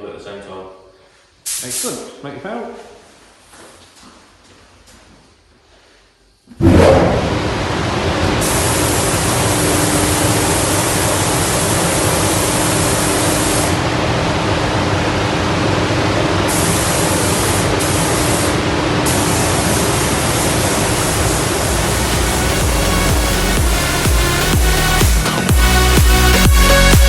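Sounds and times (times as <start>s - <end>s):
spray booth air system hum: 0.8s - 3.5s, 5.4s - 27.0s
spray gun hissing: 1.4s - 2.1s, 8.4s - 13.8s, 16.5s - 26.4s.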